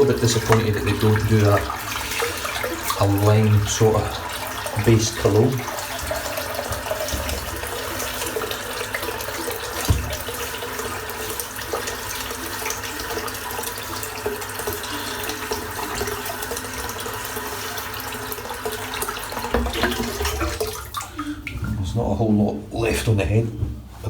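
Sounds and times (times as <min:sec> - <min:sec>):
tap water running into sink: 0:00.0 - 0:21.8
knock: 0:06.0 - 0:07.8, 0:09.8 - 0:10.3.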